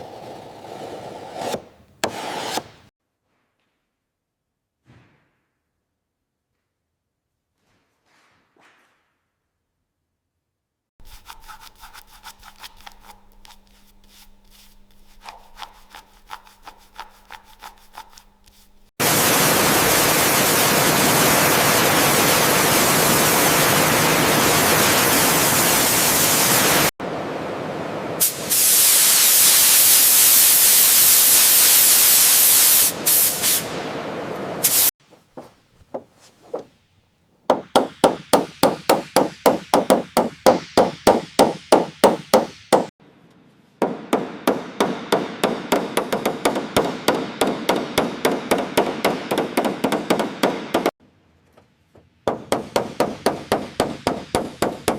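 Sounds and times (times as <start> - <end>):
rapid regular tool strokes: 11.0 - 18.9, 37.5 - 42.9.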